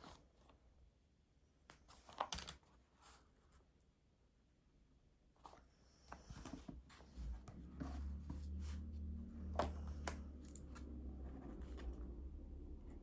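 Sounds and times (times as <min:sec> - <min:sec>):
faint low hum: 0:02.8 - 0:13.0.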